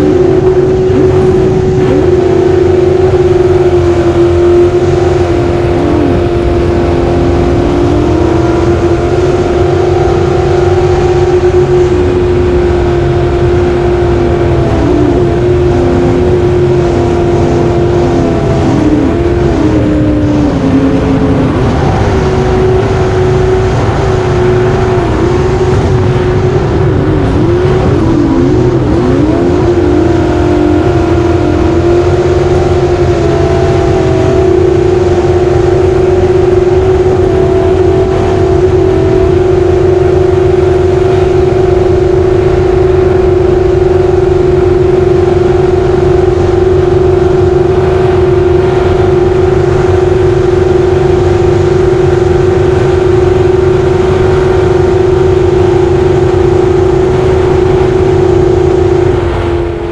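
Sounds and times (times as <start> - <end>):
jet boat engine running loud: 0.0 - 59.9.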